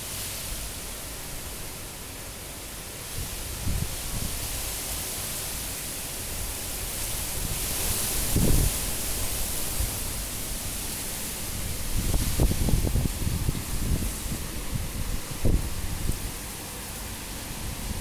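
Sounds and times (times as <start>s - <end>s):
wind rushing with gusts: 6.4s - 18.0s
wind buffeting microphone: 7.0s - 10.8s, 11.4s - 16.5s.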